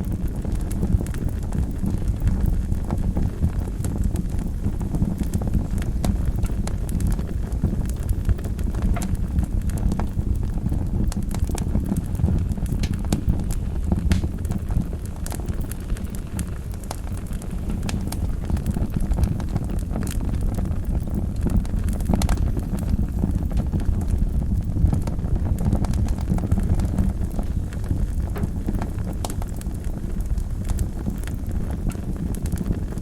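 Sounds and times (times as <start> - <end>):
wood fire crackling and popping: 0.0 - 33.0.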